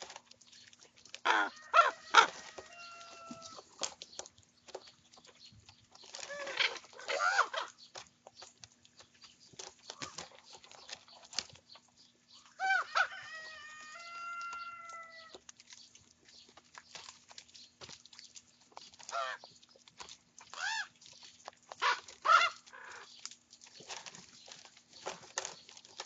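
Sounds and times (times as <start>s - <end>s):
ravens calling hoarsely: 1.2s - 3.6s, 6.3s - 7.8s, 12.5s - 15.4s, 19.1s - 19.4s, 20.6s - 21.0s, 21.8s - 23.1s.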